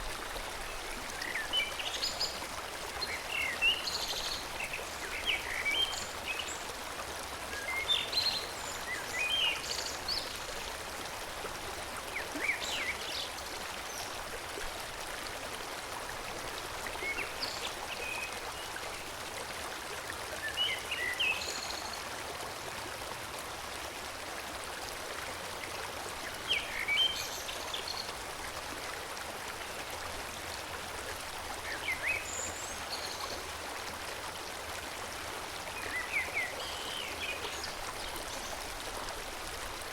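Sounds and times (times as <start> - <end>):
forest stream flowing: 0.0 - 39.9.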